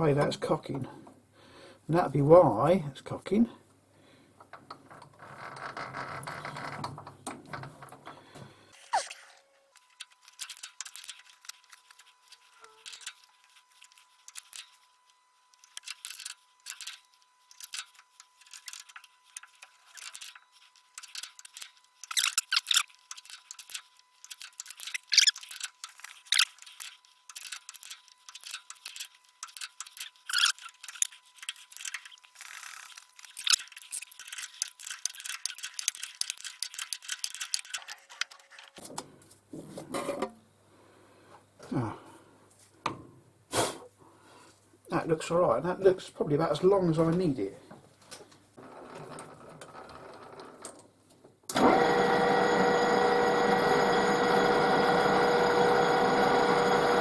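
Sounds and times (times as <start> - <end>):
metal scraping and clicking: 15.5 - 38.8.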